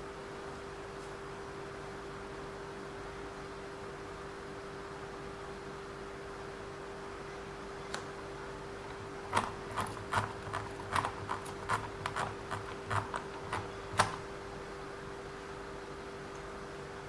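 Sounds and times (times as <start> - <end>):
faint steady hum: 0.0 - 17.0
small parts clicking and tapping: 8.9 - 14.2.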